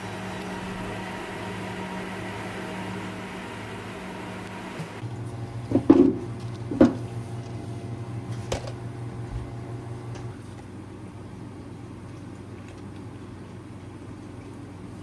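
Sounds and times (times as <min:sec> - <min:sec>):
kitchen appliance humming: 0:00.0 - 0:10.6.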